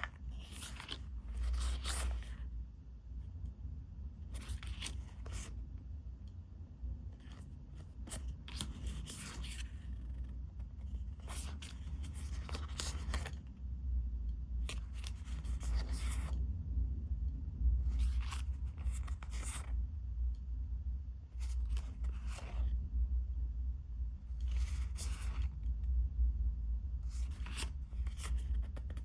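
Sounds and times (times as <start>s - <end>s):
low steady rumble: 0.0s - 29.0s
paper rustling and tearing: 11.0s - 13.4s.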